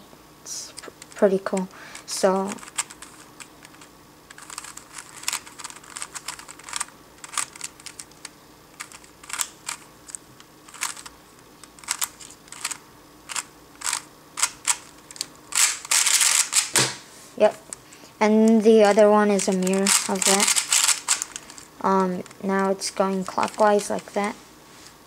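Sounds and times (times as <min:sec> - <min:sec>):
plastic puzzle cube clicking: 0:02.5 - 0:11.1, 0:11.7 - 0:16.7, 0:19.4 - 0:21.6.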